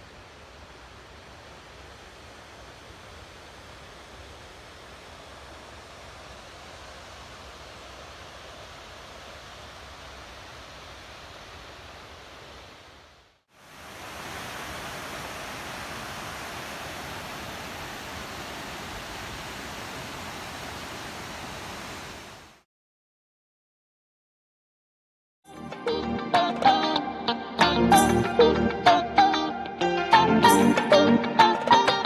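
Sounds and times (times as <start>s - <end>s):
waterfall rushing: 0.1s - 22.6s.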